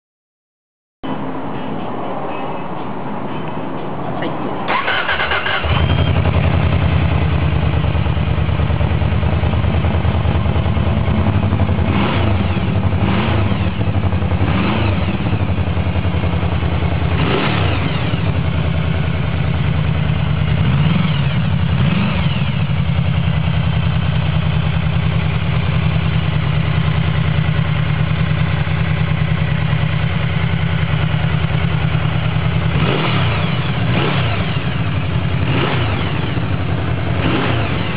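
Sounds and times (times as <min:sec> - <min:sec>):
motorcycle engine idling and revving: 0:04.1 - 0:37.9
motorcycle starter cranking: 0:04.7 - 0:06.2.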